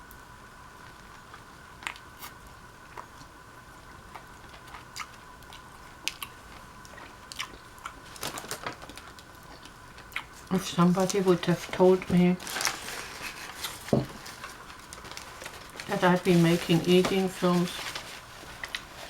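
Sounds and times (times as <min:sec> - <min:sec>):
faint steady hum: 0:00.0 - 0:19.0
chewing and biting sandwich: 0:00.9 - 0:10.4
small crunches: 0:04.1 - 0:16.4.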